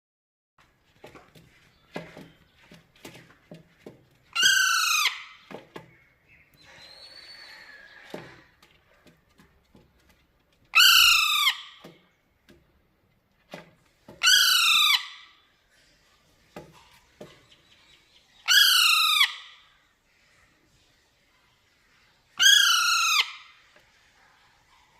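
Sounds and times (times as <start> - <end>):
parrot calling: 4.3 - 5.4, 6.5 - 8.5, 10.7 - 11.8, 14.2 - 15.4, 18.4 - 19.7, 22.4 - 23.6
faint clicks and taps: 8.0 - 10.7, 11.8 - 14.2.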